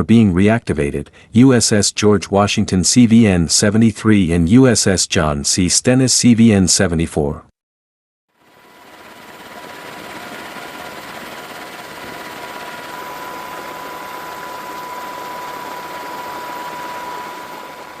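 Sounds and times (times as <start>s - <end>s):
thin steady whine: 8.4s - 18.0s.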